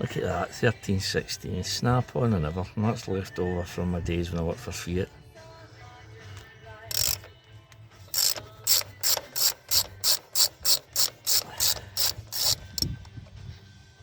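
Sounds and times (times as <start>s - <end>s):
hand ratchet ratcheting: 6.9s - 7.4s, 8.1s - 13.0s.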